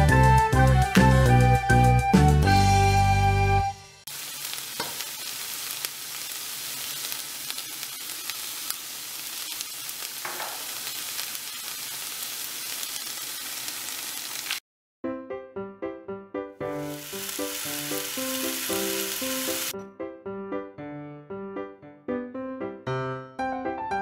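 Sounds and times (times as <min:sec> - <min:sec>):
meat sizzling in a frying pan: 0:04.1 - 0:14.6, 0:16.6 - 0:19.8
chopsticks tapping and scraping pan: 0:04.8 - 0:05.1, 0:10.2 - 0:10.8.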